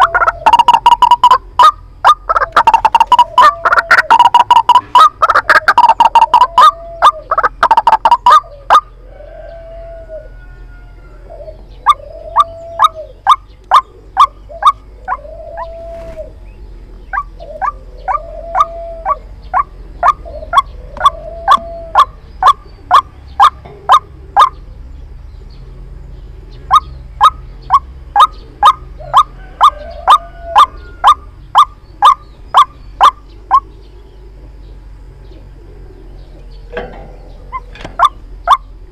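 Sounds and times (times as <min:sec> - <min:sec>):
waterhen calling: 0:00.0 - 0:10.4, 0:11.2 - 0:16.4, 0:17.1 - 0:24.6, 0:26.7 - 0:33.8, 0:36.7 - 0:38.9.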